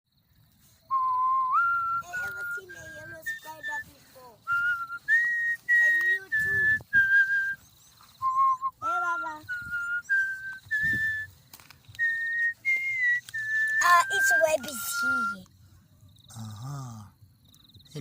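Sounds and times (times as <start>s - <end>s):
person whistling a tune: 0.8s - 11.3s, 11.9s - 15.5s.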